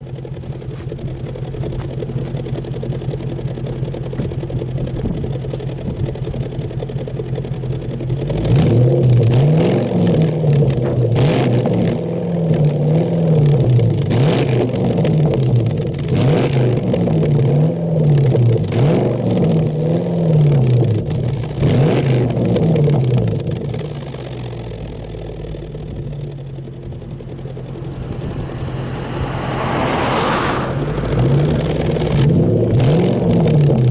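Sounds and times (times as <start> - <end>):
car engine idling and revving: 0.0 - 33.9
exhaust snaps: 20.5 - 33.9.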